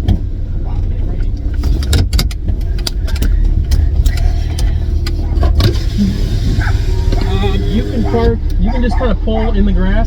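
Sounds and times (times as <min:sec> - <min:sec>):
car interior low rumble: 0:00.0 - 0:10.0
sharp clicks and knocks: 0:01.4 - 0:05.8.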